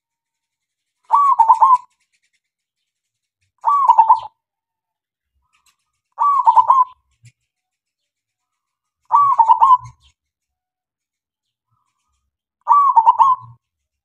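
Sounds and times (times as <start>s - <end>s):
dove cooing: 1.1s - 2.0s, 3.6s - 4.4s, 6.2s - 7.1s, 9.1s - 10.1s, 12.7s - 13.6s.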